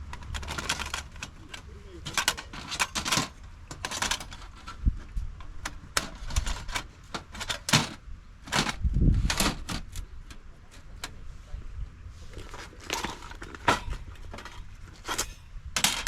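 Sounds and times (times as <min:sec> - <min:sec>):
clicks and knocks of hard objects: 0:00.0 - 0:11.2, 0:12.4 - 0:16.0.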